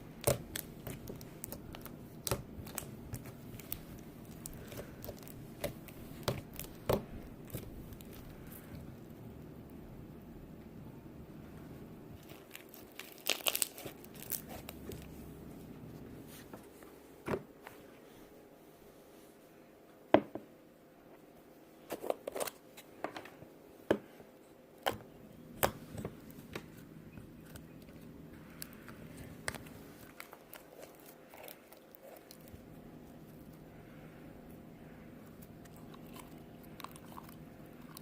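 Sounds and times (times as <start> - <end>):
slime popping and crackling: 0.0 - 8.7, 12.2 - 15.1.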